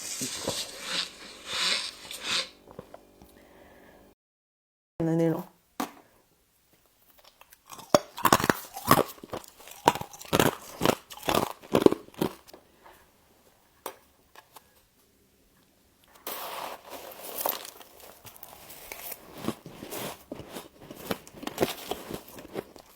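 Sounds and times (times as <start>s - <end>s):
rustling crunch: 0.0s - 3.2s, 16.1s - 22.9s
crisp crunches of chewing: 7.2s - 12.5s, 16.4s - 22.9s.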